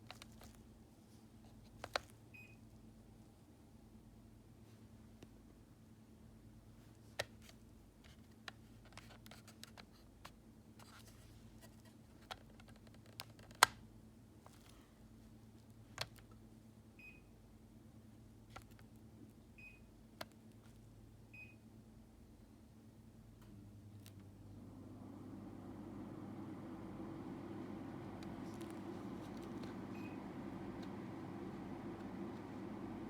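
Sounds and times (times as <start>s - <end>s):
faint steady hum: 0.0s - 33.0s
air conditioner beeps: 2.3s - 2.6s, 16.9s - 17.4s, 19.6s - 20.0s, 21.3s - 21.8s, 25.4s - 33.0s.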